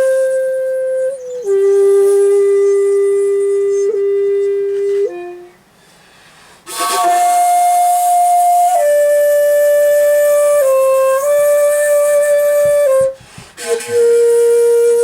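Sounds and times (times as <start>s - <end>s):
bamboo flute notes: 0.0s - 15.0s
breathy rush of air: 5.7s - 6.7s.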